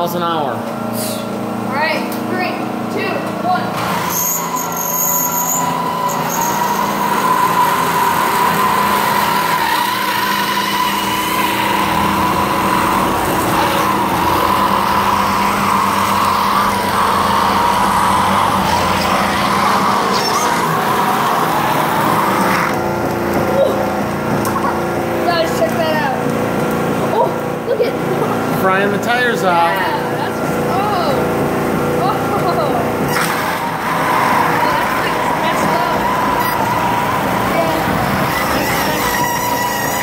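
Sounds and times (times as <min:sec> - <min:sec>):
radio-controlled car motor whining: 0:03.8 - 0:23.5, 0:32.4 - 0:40.0.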